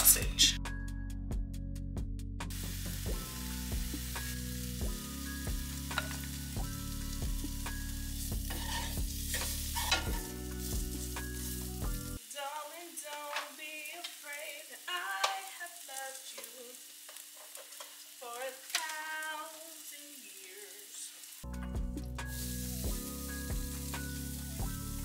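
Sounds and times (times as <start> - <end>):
background music: 0.0 - 12.3, 21.4 - 25.0
sausage sizzling in a pan: 2.4 - 25.0.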